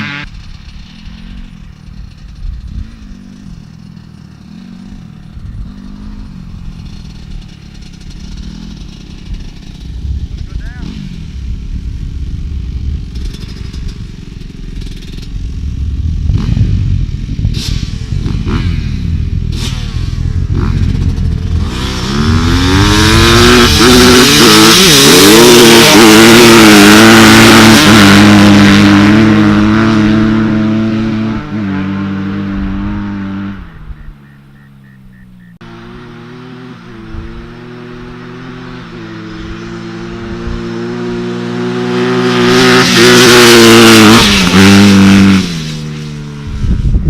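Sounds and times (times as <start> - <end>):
dirt bike engine revving: 0.0 - 47.0
low engine rumble: 0.2 - 23.8.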